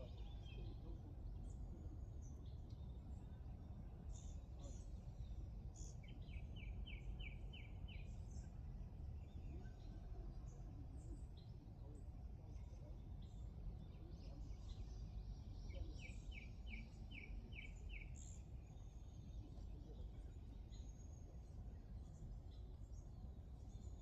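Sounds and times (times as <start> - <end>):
outdoor background hum: 0.0 - 24.0.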